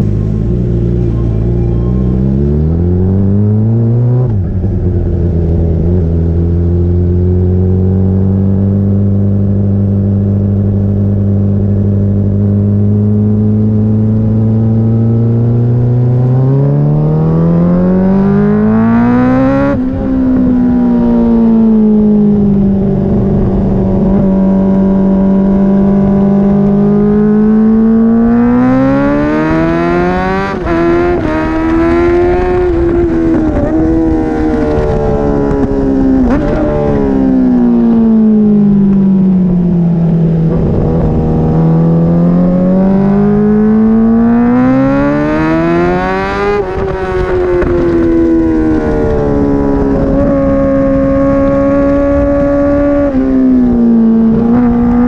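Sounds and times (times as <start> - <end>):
motorcycle engine revving: 0.0 - 55.0
wind rush: 18.4 - 27.5, 28.4 - 55.0.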